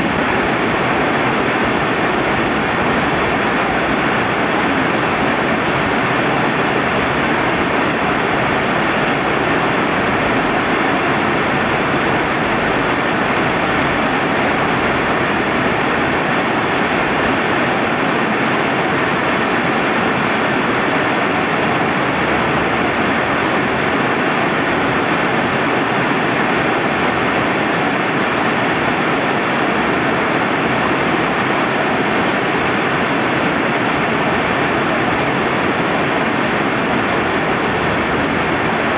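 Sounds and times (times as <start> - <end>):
running river water: 0.0 - 38.9
steady rain: 0.0 - 38.9.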